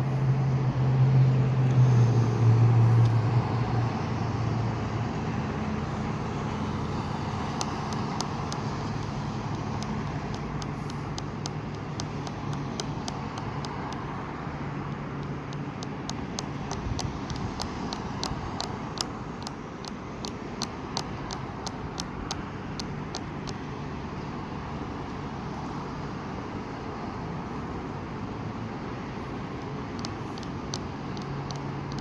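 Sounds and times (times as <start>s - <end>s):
low engine hum: 0.0s - 32.0s
outdoor traffic noise: 0.0s - 32.0s
fast regular ticking: 6.7s - 23.7s, 29.6s - 32.0s.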